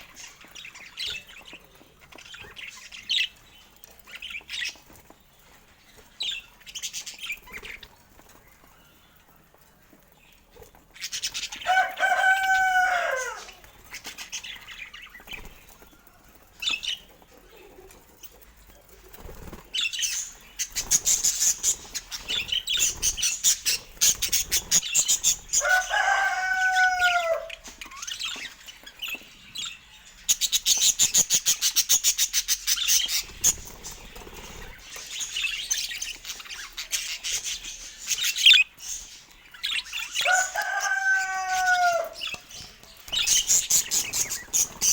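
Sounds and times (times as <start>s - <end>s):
drawn-out falling bird call: 40.2s - 42.5s.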